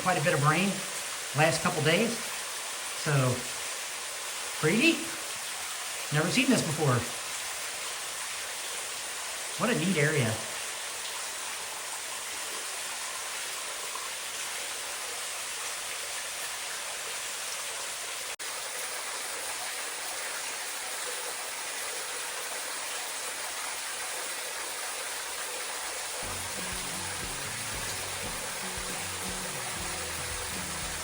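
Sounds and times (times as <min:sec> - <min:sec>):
waterfall rushing: 0:25.9 - 0:31.0.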